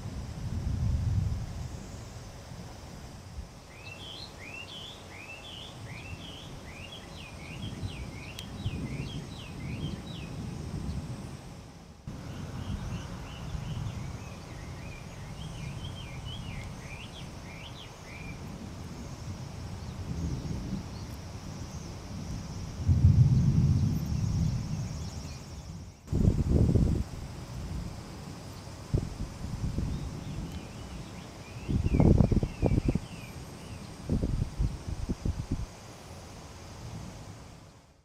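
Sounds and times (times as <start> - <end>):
distant thunder rumbling: 0.0 - 1.8, 7.4 - 33.1
songbird chirping: 3.6 - 11.1, 12.1 - 22.1, 29.8 - 34.1.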